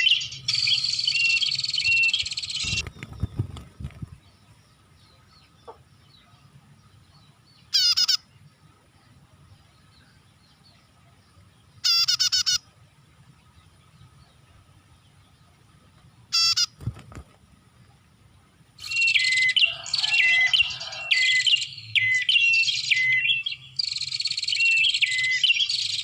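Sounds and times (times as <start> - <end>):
bird buzzy trill: 0.0 - 4.0, 7.7 - 8.3, 11.8 - 12.8, 16.3 - 17.0.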